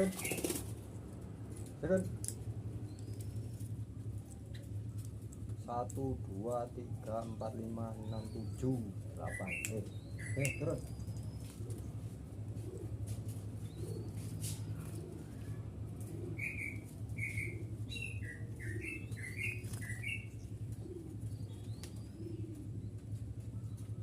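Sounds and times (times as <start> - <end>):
wings fluttering: 0.0 - 6.2, 7.6 - 24.0
steady low hum: 0.0 - 24.0
doves cooing: 4.4 - 24.0.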